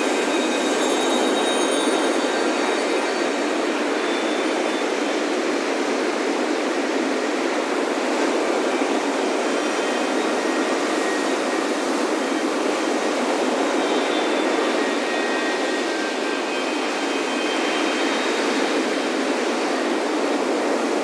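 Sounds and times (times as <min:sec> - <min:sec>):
wind chime tones: 0:00.0 - 0:05.2
ocean surf breaking on beach: 0:00.0 - 0:21.0.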